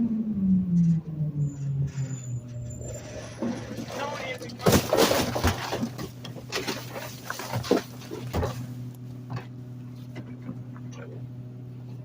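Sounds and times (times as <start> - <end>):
garbage truck humming: 0.0 - 12.0
trash knocking and crackling: 2.8 - 10.8.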